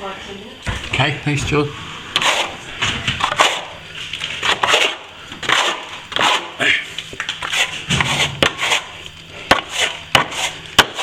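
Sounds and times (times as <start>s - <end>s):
metal plastering tool scraping: 2.1s - 6.6s, 7.3s - 11.0s.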